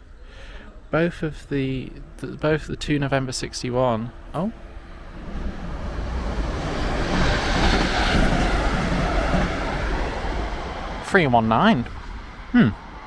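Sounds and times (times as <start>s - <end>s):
train wheels rumbling on rails: 4.5s - 13.0s.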